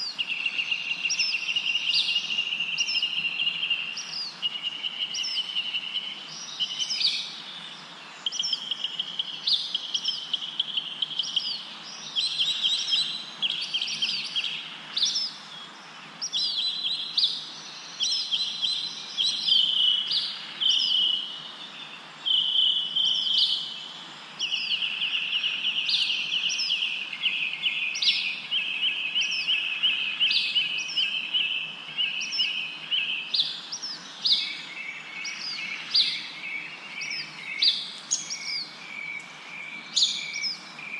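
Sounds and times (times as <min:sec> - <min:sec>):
songbirds chirping and trilling: 0:00.0 - 0:40.9.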